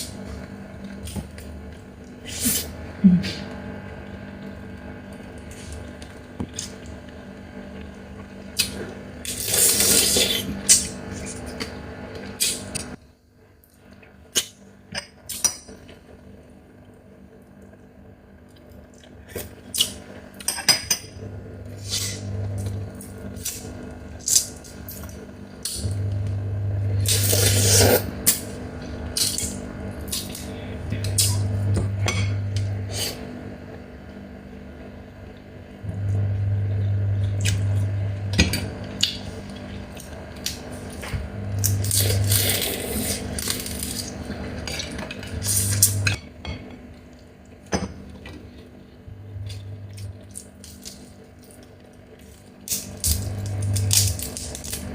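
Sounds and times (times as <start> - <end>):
crab shell cracking: 52.7 - 54.8.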